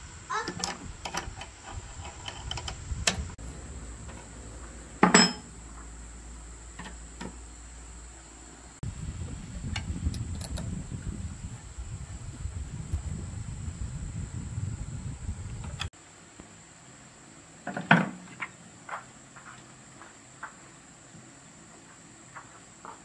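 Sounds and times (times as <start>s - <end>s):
loud metal clank: 5.0s - 5.6s.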